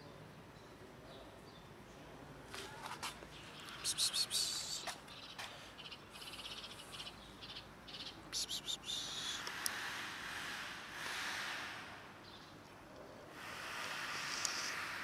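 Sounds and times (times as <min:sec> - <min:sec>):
small birds chirping: 0:02.7 - 0:09.7.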